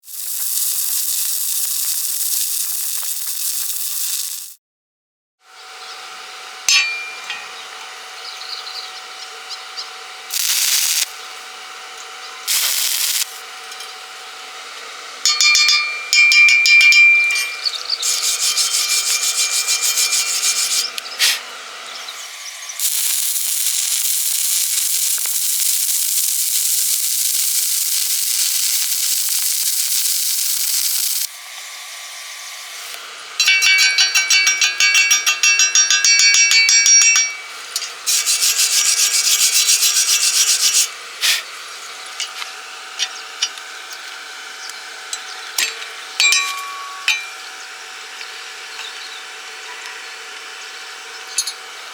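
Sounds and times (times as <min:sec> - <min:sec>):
steady hiss: 0:00.0 - 0:04.6, 0:10.3 - 0:11.1, 0:12.5 - 0:13.4, 0:18.0 - 0:21.5, 0:22.2 - 0:31.5, 0:38.1 - 0:41.5
ringing rhythmic metal scraping: 0:06.5 - 0:08.5, 0:15.2 - 0:24.2, 0:33.3 - 0:40.9, 0:45.2 - 0:47.7
abrasive rubbing on metal: 0:17.4 - 0:21.5, 0:37.1 - 0:41.4.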